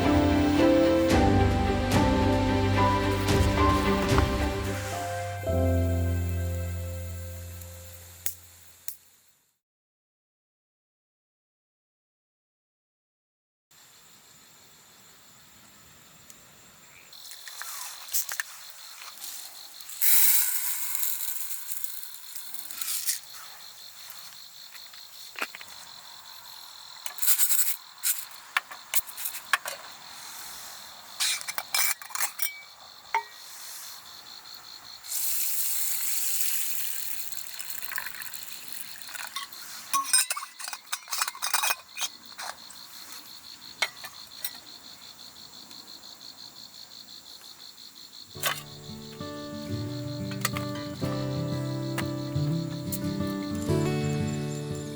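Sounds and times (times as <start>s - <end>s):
high insect trill: 0.0s - 1.5s, 2.7s - 9.4s, 16.8s - 54.9s
camping gear clinking and knocking: 27.0s - 30.0s, 31.2s - 33.5s, 36.6s - 42.8s, 43.7s - 44.8s, 48.4s - 54.4s.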